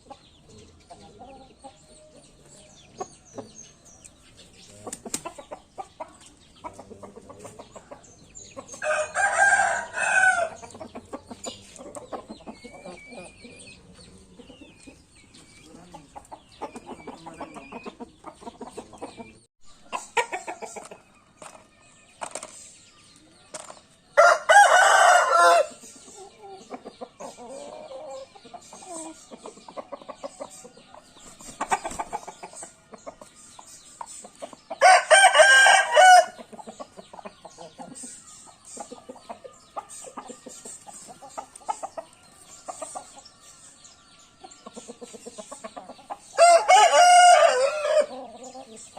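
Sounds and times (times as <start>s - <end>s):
soft clucking: 0.0s - 8.8s, 10.6s - 21.6s
rooster crowing: 8.8s - 10.6s, 24.2s - 25.8s, 34.8s - 36.4s, 46.4s - 48.1s.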